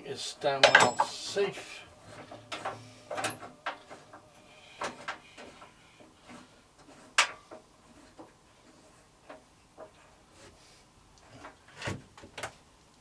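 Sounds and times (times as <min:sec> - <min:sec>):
cover doors shut and latched: 0:00.6 - 0:01.3.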